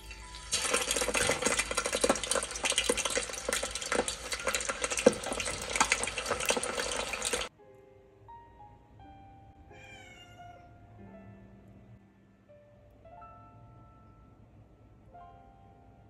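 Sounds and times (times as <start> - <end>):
chicken frying in hot oil: 0.0 - 7.5
sizzling with pops and crackles: 0.0 - 7.5.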